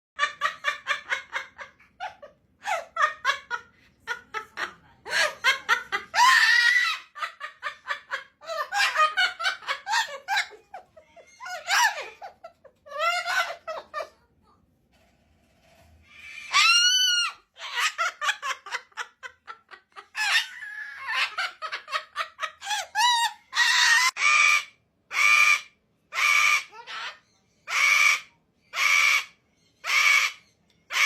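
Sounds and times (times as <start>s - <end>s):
bird screech: 16.0s - 17.4s.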